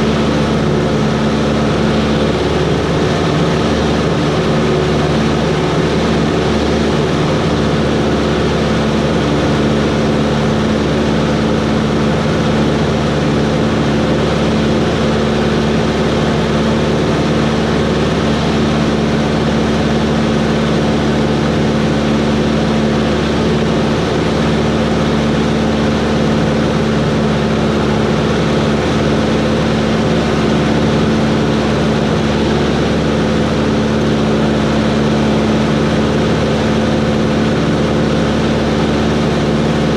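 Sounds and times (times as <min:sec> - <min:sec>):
airplane engine and propeller drone: 0:00.0 - 0:39.9.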